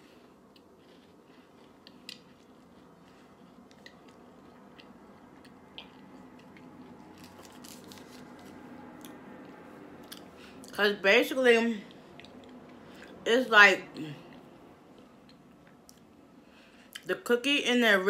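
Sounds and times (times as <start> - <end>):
chewing crunches: 0.4 - 10.8.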